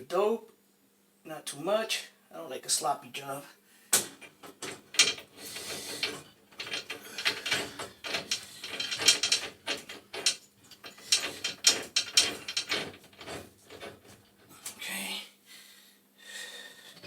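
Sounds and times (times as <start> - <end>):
metal clicks and rasps of tools: 4.2 - 14.2.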